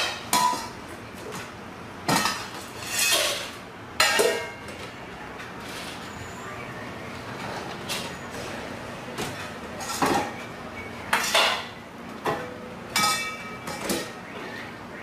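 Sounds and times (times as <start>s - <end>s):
dishes clinking: 0.0s - 0.8s, 2.1s - 4.9s, 9.2s - 10.5s, 11.1s - 14.2s.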